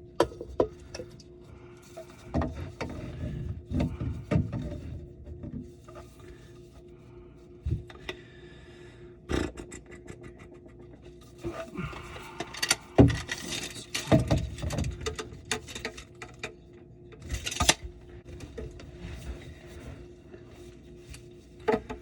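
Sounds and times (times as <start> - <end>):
faint steady hum: 0.0 - 22.0
tools knocking and rattling: 12.4 - 16.5.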